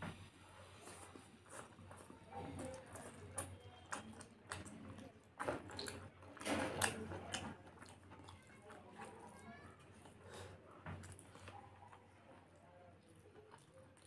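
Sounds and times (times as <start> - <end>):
wet chewing and lip smacks: 1.5 - 6.1, 11.0 - 14.0.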